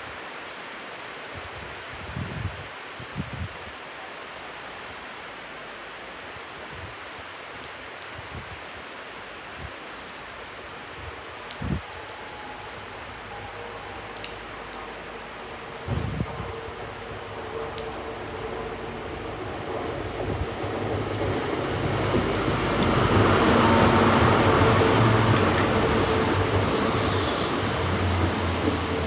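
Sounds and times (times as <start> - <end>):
steady rain falling: 0.0 - 29.0
diesel train approaching: 12.0 - 29.0.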